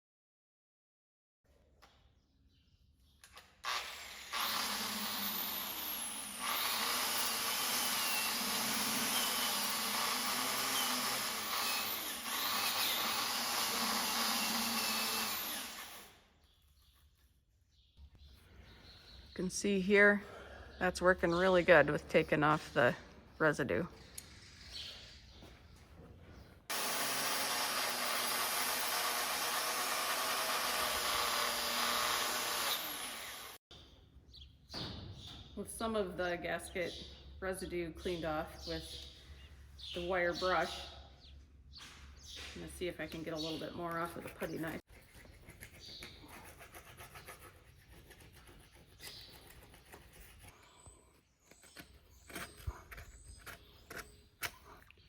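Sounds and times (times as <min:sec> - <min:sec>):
power tool wire brush scouring metal: 0:03.7 - 0:16.2, 0:26.7 - 0:33.6
putty knife scraping metal: 0:51.4 - 0:54.8.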